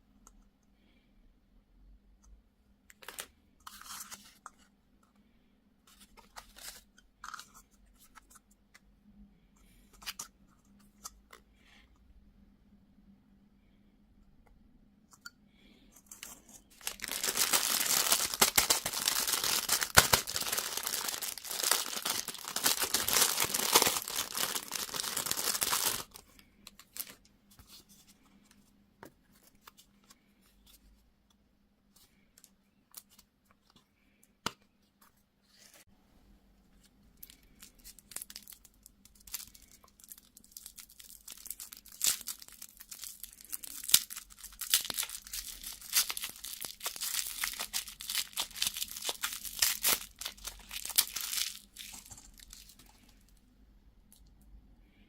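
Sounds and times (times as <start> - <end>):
candy wrapper crinkling and tearing: 16.0 - 27.2, 37.2 - 53.3.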